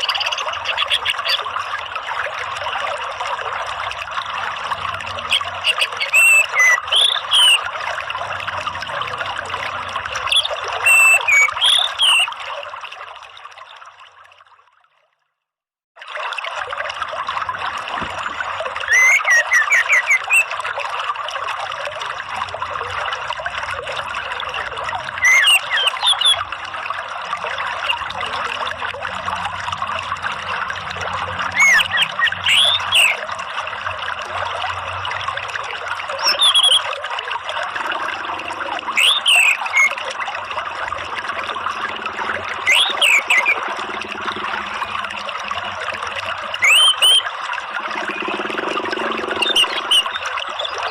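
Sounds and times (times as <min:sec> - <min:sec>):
running water: 0:00.0 - 0:15.0, 0:16.0 - 0:50.9
bird whistling calls: 0:05.3 - 0:07.6, 0:10.3 - 0:12.3, 0:18.9 - 0:20.5, 0:25.2 - 0:26.4, 0:31.6 - 0:33.2, 0:36.2 - 0:36.9, 0:38.8 - 0:40.0, 0:42.2 - 0:43.7, 0:46.6 - 0:47.3.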